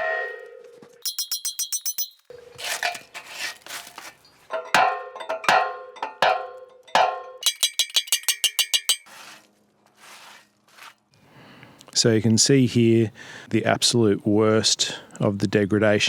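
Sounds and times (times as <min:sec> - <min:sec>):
metal tool clanging on steel wheel: 0:01.0 - 0:03.0, 0:07.0 - 0:09.2
rattling clicks: 0:07.4 - 0:09.0
metal scraping: 0:07.4 - 0:09.4.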